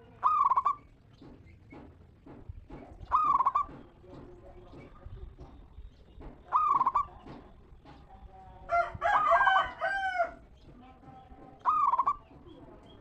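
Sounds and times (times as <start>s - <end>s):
dove cooing: 0.0s - 0.9s, 3.0s - 3.8s, 6.5s - 7.3s, 11.6s - 12.5s
faint bird calls: 0.0s - 1.6s, 3.0s - 4.0s, 5.9s - 7.5s, 11.6s - 13.0s.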